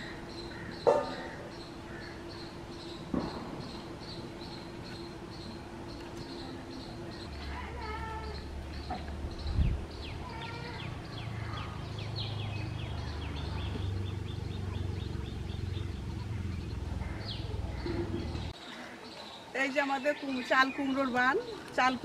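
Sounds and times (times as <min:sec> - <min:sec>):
birds chirping: 0:00.0 - 0:22.0
thump: 0:03.1 - 0:03.7.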